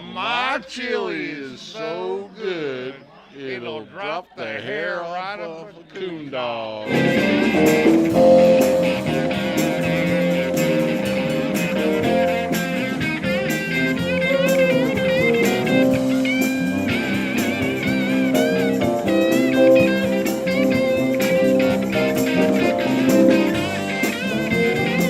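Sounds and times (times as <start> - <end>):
blues guitar music: 6.9 - 25.0.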